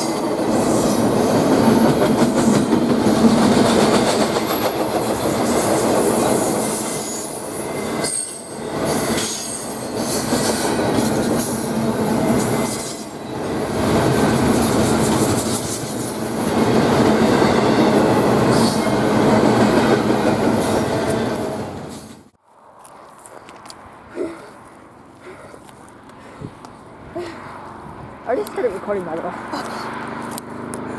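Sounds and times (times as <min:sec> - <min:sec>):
train wheels clacking: 0:00.0 - 0:22.3
wheel squeal: 0:05.4 - 0:16.2.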